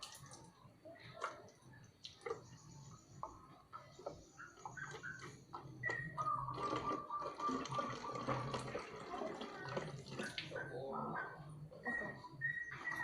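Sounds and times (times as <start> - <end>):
water dripping and splashing: 0.0 - 10.7
water running: 6.6 - 10.6.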